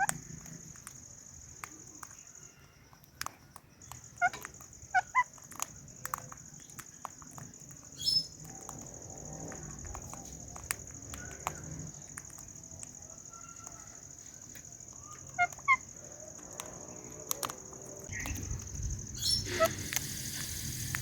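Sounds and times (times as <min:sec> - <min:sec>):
sharp bird calls: 0:03.8 - 0:06.8, 0:07.9 - 0:08.4, 0:14.9 - 0:20.6.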